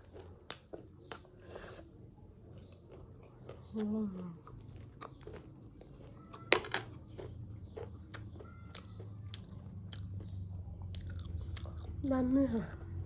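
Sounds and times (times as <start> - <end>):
chewing crunchy snack: 0.0 - 12.1.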